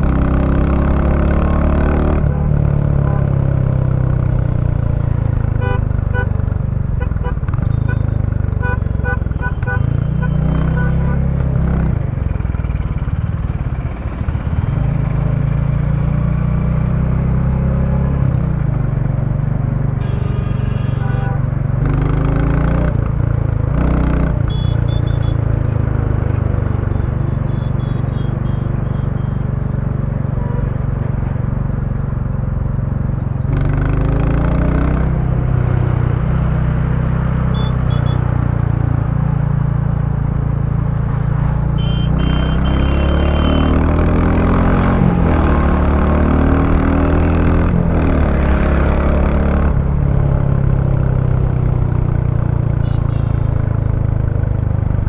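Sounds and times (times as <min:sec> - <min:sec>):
motorcycle engine running: 0:24.3 - 0:36.8, 0:37.4 - 0:44.0, 0:49.1 - 0:55.0.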